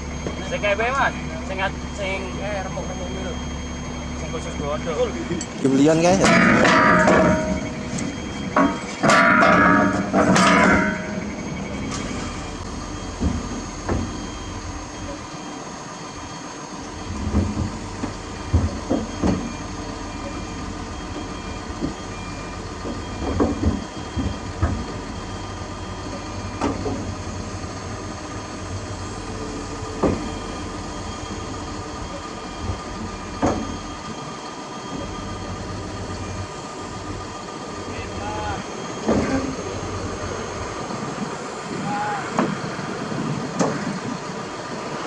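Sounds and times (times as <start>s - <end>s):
heavy diesel machinery running: 0.0s - 45.0s
loud metallic clanks: 5.3s - 14.2s.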